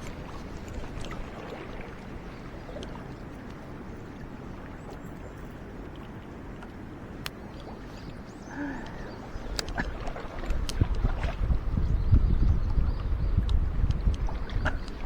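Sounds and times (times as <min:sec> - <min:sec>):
stream water rushing: 0:00.0 - 0:11.8
faint clicks: 0:08.8 - 0:11.1.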